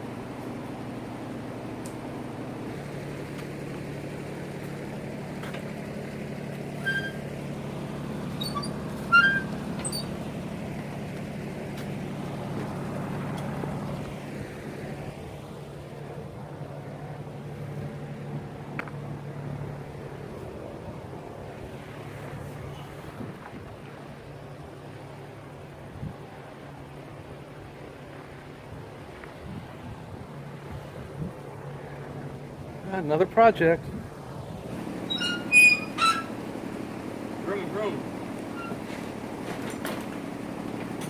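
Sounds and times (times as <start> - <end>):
small vehicle engine humming: 0.0 - 41.0.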